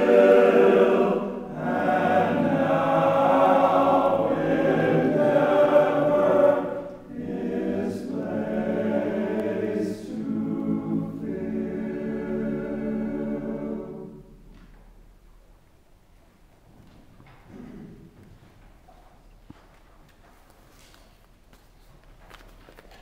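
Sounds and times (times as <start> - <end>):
group singing a hymn: 0.0 - 14.5.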